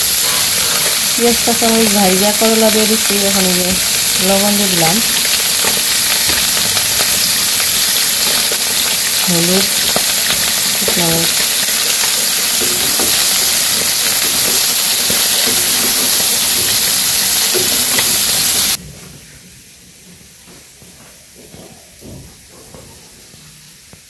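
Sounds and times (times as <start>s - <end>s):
vegetables sizzling in hot oil: 0.0s - 18.8s.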